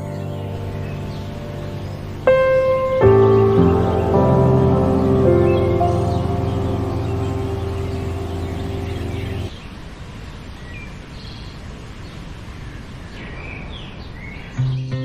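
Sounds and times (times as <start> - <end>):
background music chord: 0.0 - 9.5
birds chirping: 0.0 - 9.7
steady outdoor hiss: 0.0 - 15.0.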